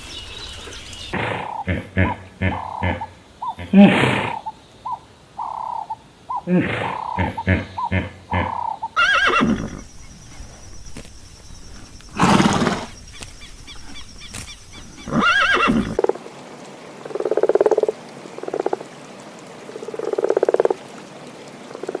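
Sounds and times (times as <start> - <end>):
frog croaking: 1.1 - 16.2, 17.0 - 18.8, 19.7 - 20.8
horse whinnying: 6.5 - 9.9, 12.1 - 13.0, 14.9 - 16.0.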